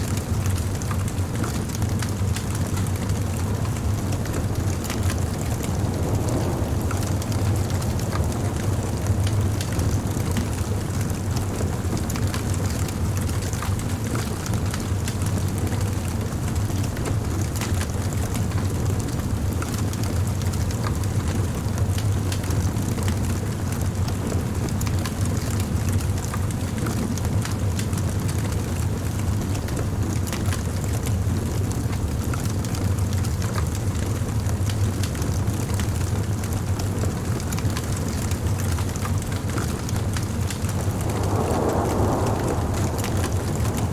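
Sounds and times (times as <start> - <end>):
wood fire crackling: 1.1 - 14.8, 37.4 - 43.9.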